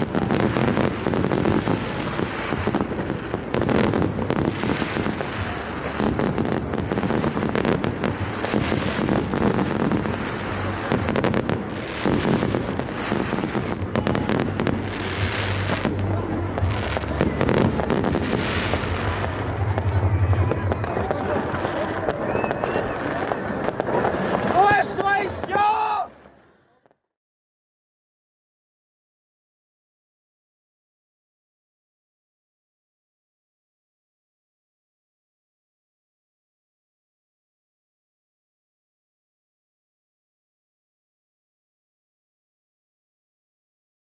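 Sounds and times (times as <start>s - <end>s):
fireworks cracking and banging: 0.0s - 27.0s
voices: 10.0s - 26.4s.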